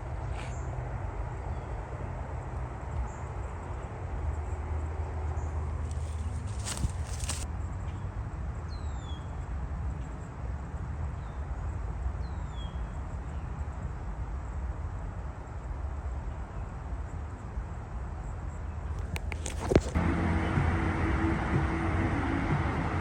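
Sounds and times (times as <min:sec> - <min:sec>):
low outdoor rumble: 0:00.0 - 0:08.2, 0:19.0 - 0:23.0.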